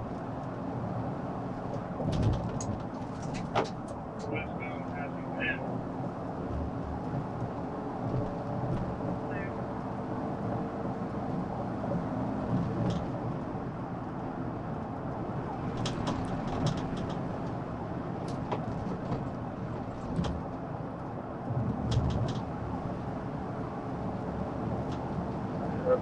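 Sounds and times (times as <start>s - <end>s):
car driving fast on highway: 0.0s - 26.0s.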